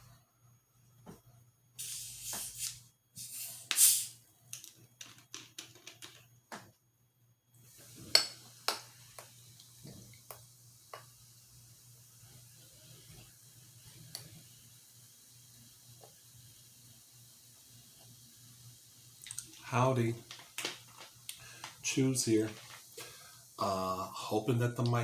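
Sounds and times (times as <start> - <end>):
rustling hiss: 1.8 - 4.2, 7.6 - 25.0.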